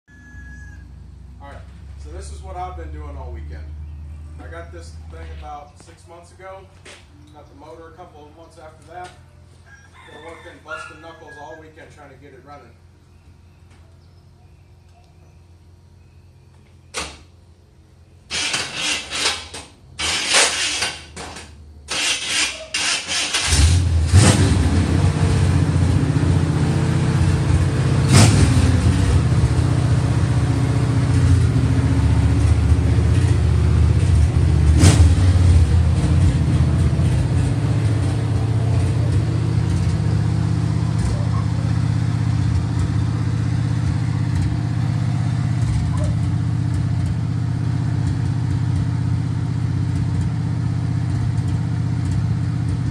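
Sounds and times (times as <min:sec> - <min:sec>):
car starter cranking: 0:18.3 - 0:21.2, 0:21.9 - 0:23.9
car engine running: 0:23.4 - 0:52.9.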